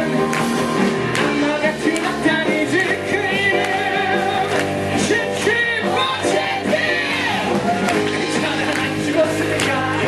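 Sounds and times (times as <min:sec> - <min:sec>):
instrumental accompaniment: 0:00.0 - 0:10.0
person singing: 0:00.0 - 0:10.0.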